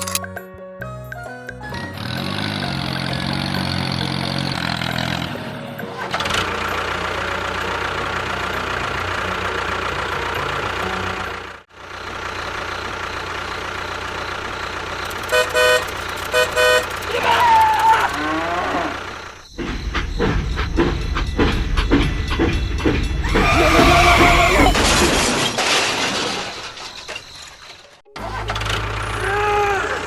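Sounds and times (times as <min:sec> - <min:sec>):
vehicle engine running: 0:01.7 - 0:25.0, 0:28.1 - 0:30.0
short horn toots: 0:15.1 - 0:17.1.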